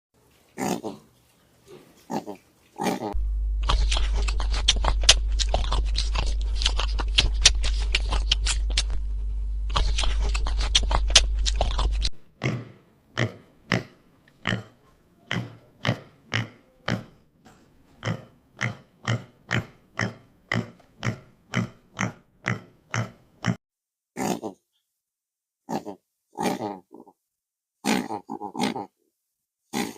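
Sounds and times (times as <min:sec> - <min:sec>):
pig grunting: 0:00.6 - 0:01.1, 0:01.7 - 0:09.0, 0:09.7 - 0:17.2, 0:18.0 - 0:23.6, 0:24.2 - 0:24.6, 0:25.7 - 0:27.2, 0:27.8 - 0:28.9
steady low hum: 0:03.2 - 0:12.2.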